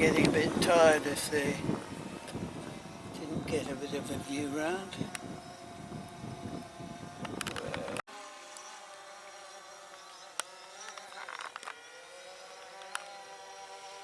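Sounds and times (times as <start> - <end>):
wind rumble on microphone: 0.0 - 8.0
rc aircraft propellers buzzing: 0.0 - 14.0.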